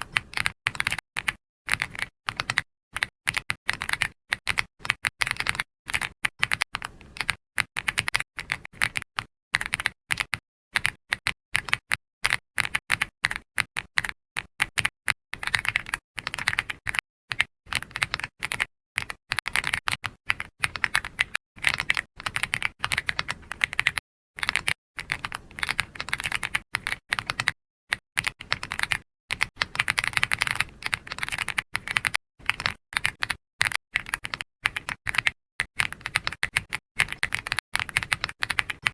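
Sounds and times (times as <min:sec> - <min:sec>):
keyboard typing clicks: 0:14.0 - 0:38.9.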